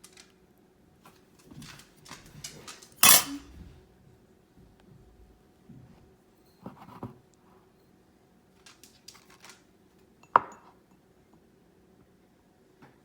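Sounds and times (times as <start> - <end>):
sharp clack of utensil: 3.0 - 3.4
utensils knocking on dishware: 3.0 - 3.4
utensils scraping dishware: 3.0 - 3.5.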